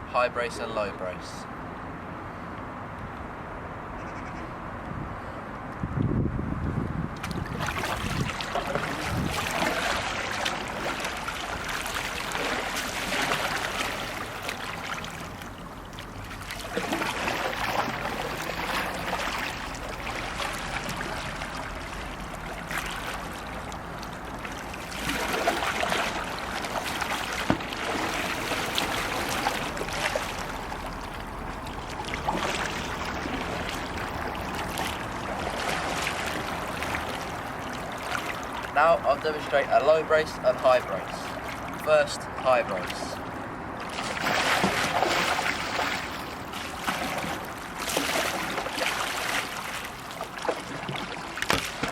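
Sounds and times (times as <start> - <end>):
paddle slapping water: 7.2 - 51.9
water sloshing around hull: 7.2 - 51.9.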